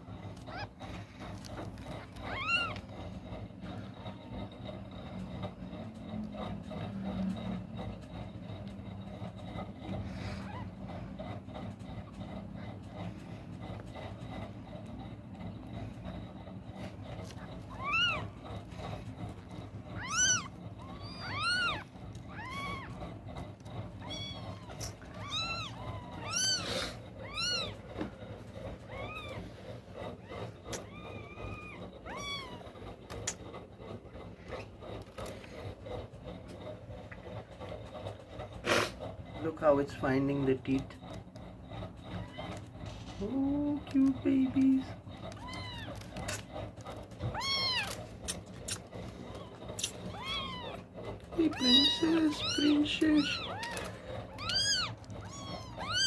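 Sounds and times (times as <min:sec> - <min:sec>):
steady low hum: 0:00.0 - 0:56.0
kitten mewing: 0:00.4 - 0:01.0, 0:01.8 - 0:02.8, 0:17.5 - 0:18.9, 0:19.6 - 0:28.0, 0:28.7 - 0:33.4, 0:45.2 - 0:46.5, 0:47.2 - 0:56.0.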